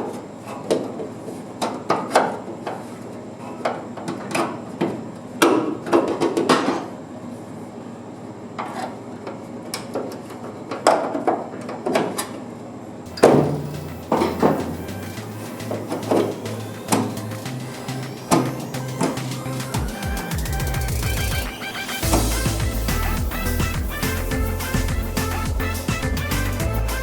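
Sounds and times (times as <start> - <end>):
hand tools on sheet metal: 13.1 - 26.6
loud metal bangs: 19.8 - 27.0.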